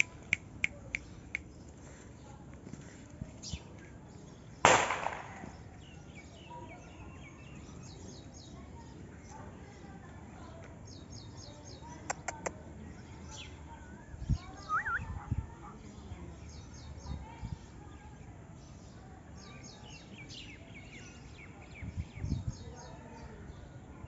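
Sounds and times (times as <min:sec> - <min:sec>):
small birds chirping: 0:00.0 - 0:23.7.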